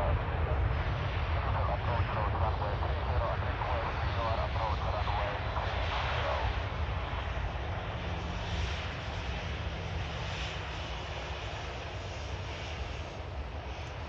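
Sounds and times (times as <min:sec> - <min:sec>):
jet airliner engine rushing: 0:00.0 - 0:14.0.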